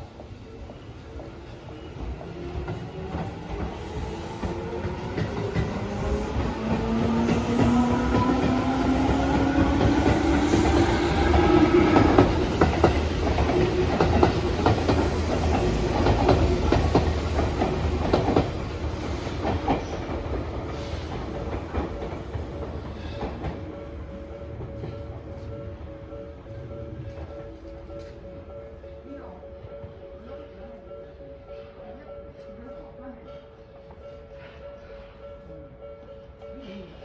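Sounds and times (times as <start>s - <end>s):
wheels clacking over rail joints: 4.5s - 23.7s.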